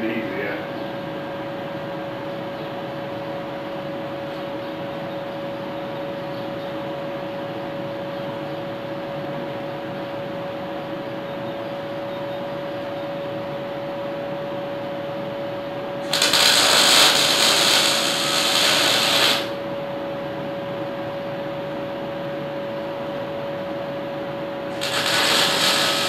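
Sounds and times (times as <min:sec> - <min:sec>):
steady background hum: 0:00.0 - 0:26.0
arc welding crackling and hissing: 0:16.0 - 0:19.8, 0:24.6 - 0:26.0.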